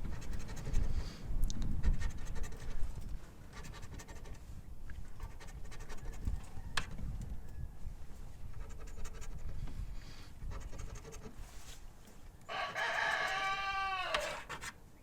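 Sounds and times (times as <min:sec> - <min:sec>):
lottery ticket being scratched: 0:00.0 - 0:01.0, 0:01.8 - 0:02.8, 0:03.5 - 0:04.4, 0:05.1 - 0:06.3, 0:08.5 - 0:09.6, 0:10.5 - 0:11.4, 0:12.6 - 0:14.8
rooster crowing: 0:06.1 - 0:07.8, 0:12.5 - 0:14.6.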